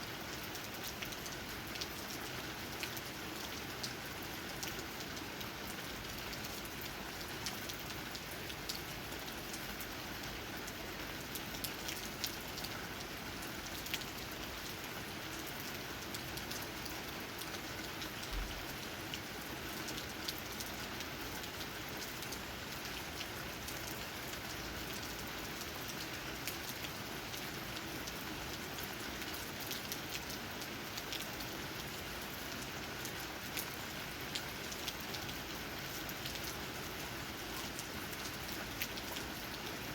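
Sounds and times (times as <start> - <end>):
steady rain hiss: 0.0 - 39.9
raindrops tapping on leaves: 15.7 - 39.9.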